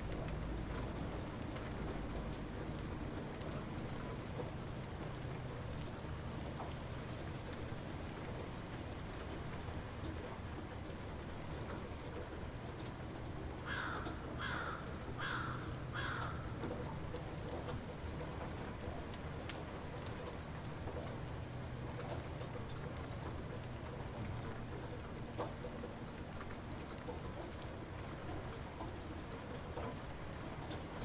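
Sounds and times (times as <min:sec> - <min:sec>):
light rain falling: 0:00.0 - 0:31.0
raindrops ticking: 0:00.0 - 0:31.0
bird calling: 0:13.7 - 0:16.5.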